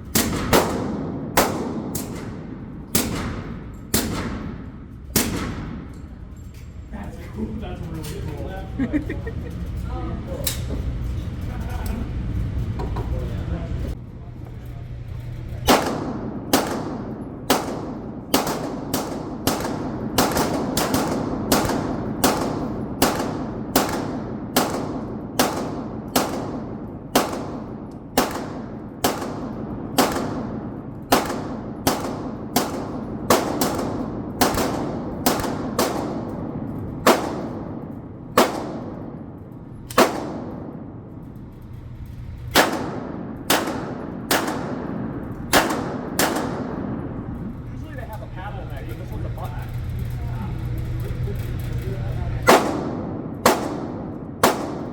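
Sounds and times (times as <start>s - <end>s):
pistol shots: 0.0s - 6.0s, 15.6s - 41.1s, 42.5s - 47.2s, 52.4s - 54.9s.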